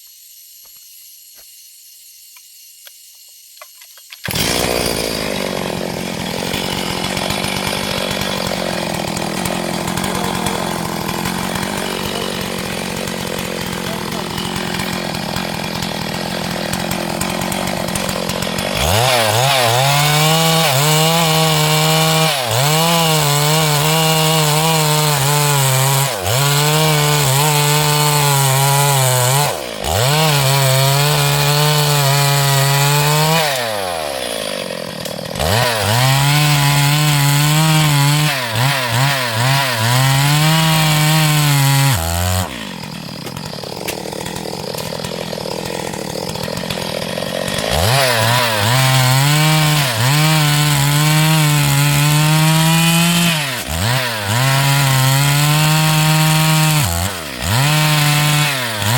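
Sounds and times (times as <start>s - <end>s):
chainsaw cutting log: 0.0s - 58.9s.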